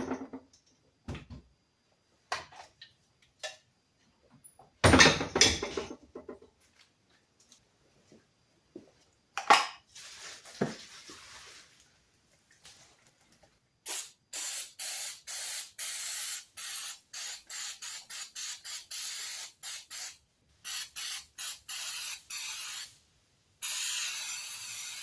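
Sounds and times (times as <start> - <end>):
sprayer hissing in short bursts: 13.8 - 22.9, 23.6 - 25.0.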